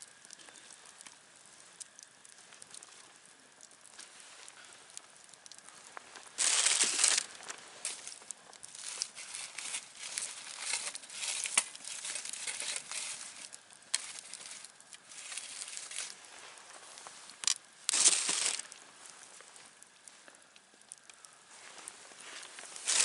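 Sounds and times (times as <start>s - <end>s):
campfire crackling: 0.0s - 23.0s
loud rustle: 6.4s - 16.5s, 17.4s - 18.6s, 22.4s - 23.0s.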